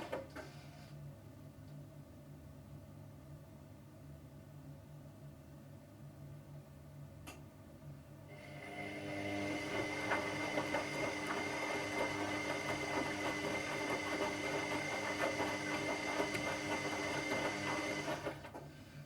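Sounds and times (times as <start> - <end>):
washing machine motor whine: 8.3 - 18.8.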